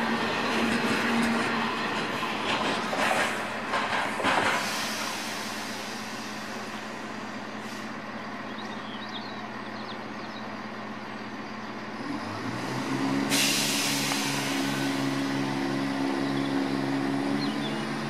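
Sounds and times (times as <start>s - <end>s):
train rumble and low hum: 0.0s - 18.0s
train wheels clattering: 0.4s - 5.7s.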